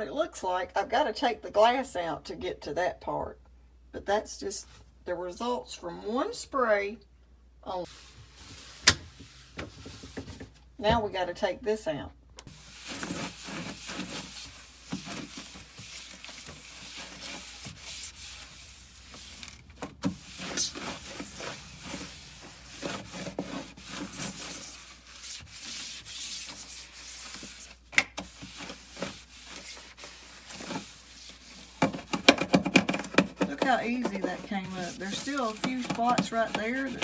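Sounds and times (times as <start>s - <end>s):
shelf being scrubbed by hand: 12.5s - 37.0s.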